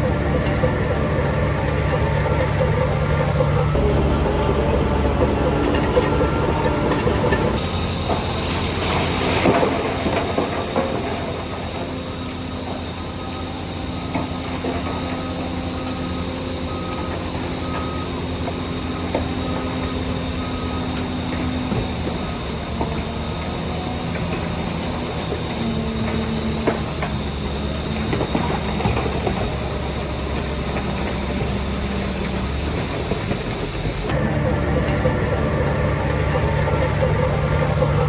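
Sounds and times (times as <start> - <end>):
heavy machinery diesel engines: 0.0 - 38.0
loud hiss of air: 7.6 - 34.2.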